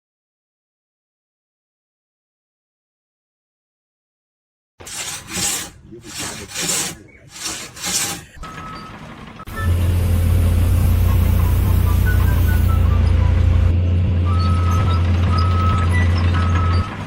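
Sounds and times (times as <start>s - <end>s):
rasping strokes on wood: 4.8s - 8.4s
low machine drone: 9.4s - 16.5s.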